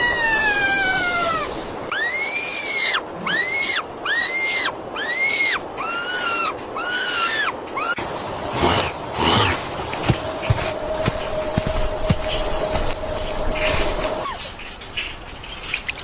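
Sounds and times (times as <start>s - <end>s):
animal high rising and falling cries: 0.0s - 8.0s.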